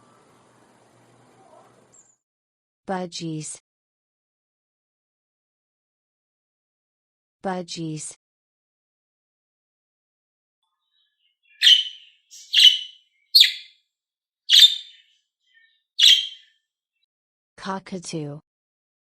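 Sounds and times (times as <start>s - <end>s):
budgerigar chirping: 11.4s - 13.7s, 14.5s - 15.0s, 16.0s - 16.4s.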